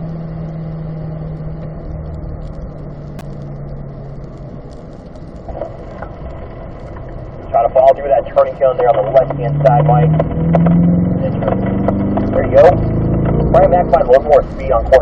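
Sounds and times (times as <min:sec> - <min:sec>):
car engine running: 0:00.0 - 0:15.0
tyre and road noise on wet track: 0:00.0 - 0:15.0.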